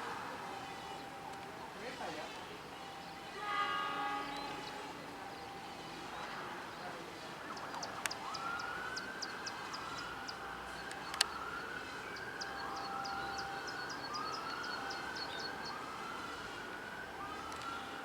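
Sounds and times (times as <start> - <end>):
faint siren-like whoop: 7.3 - 18.0.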